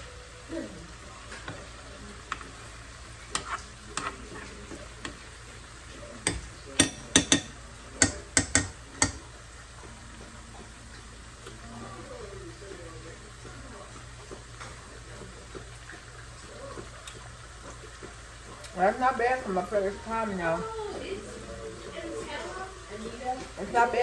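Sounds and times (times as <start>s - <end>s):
cutlery tapping on plate: 6.2s - 9.2s.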